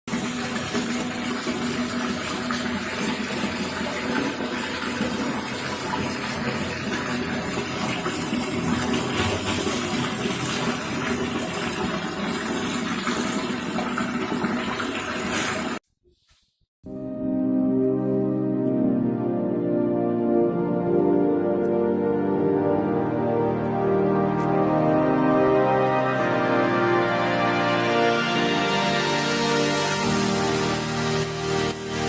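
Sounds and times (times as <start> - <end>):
water gushing and splashing: 0.1 - 15.8, 24.8 - 32.0
water pump humming: 0.1 - 15.8, 23.8 - 32.0
music: 16.8 - 32.0.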